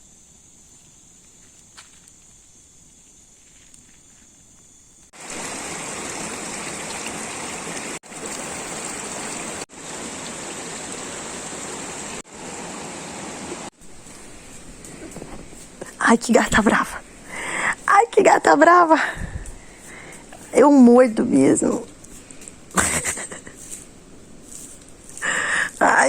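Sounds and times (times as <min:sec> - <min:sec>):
insect chirring: 0:00.0 - 0:06.1, 0:13.8 - 0:26.0
rushing water: 0:05.2 - 0:18.9.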